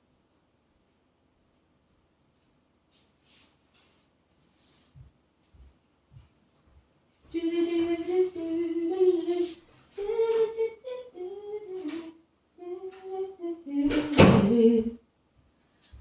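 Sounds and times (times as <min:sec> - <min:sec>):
woman humming: 0:07.4 - 0:15.0.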